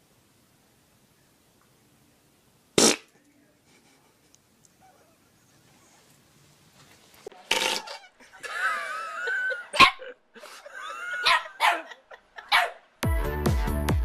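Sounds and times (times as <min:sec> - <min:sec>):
dog barking: 0:09.8 - 0:10.1, 0:11.2 - 0:12.8.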